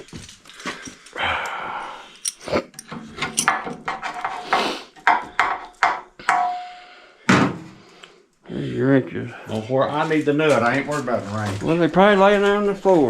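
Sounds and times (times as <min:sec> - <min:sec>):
metal hand tools clinking: 0:02.1 - 0:03.9.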